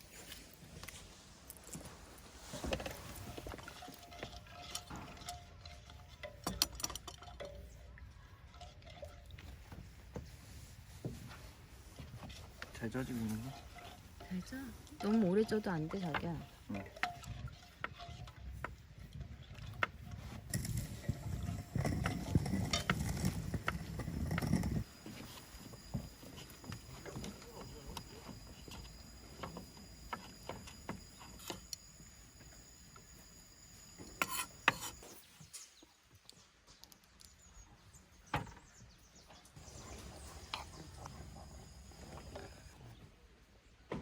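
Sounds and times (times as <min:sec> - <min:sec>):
faint handling and rubbing: 0:00.0 - 0:06.4, 0:07.3 - 0:32.2.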